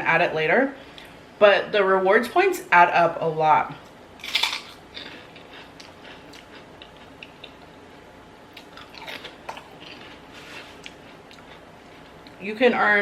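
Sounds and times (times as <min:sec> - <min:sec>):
person chewing salad: 0:03.8 - 0:12.4.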